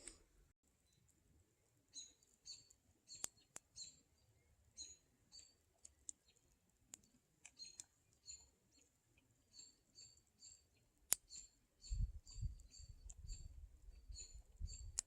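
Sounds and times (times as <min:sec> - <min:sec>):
campfire wood popping: 0:05.8 - 0:08.0.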